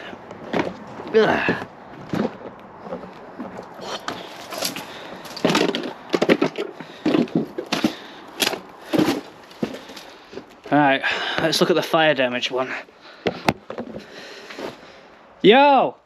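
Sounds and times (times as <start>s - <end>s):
wood and debris crunching: 0.0s - 11.6s.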